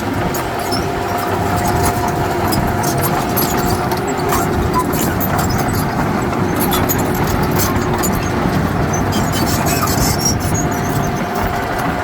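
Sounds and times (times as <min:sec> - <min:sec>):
heavy machinery rumbling: 0:00.0 - 0:12.0
light clicks and clatter: 0:00.0 - 0:12.0.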